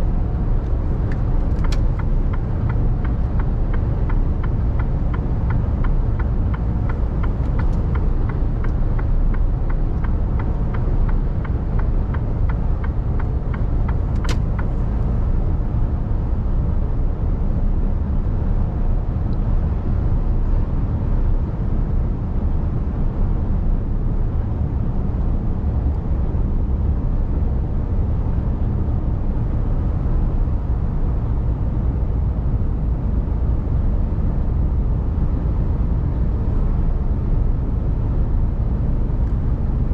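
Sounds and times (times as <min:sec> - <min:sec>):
truck engine and road rumble: 0:00.0 - 0:39.9
sharp click: 0:14.2 - 0:14.7.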